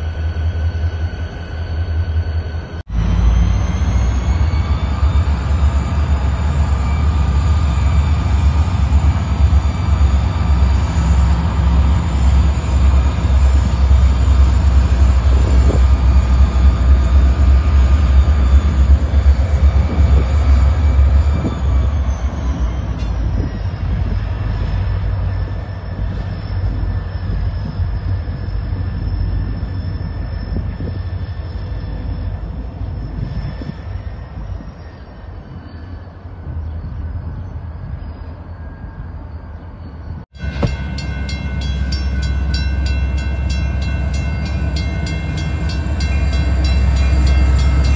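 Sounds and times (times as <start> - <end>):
diesel locomotive engine rumble: 0.0 - 47.9
steady whine: 40.4 - 47.9.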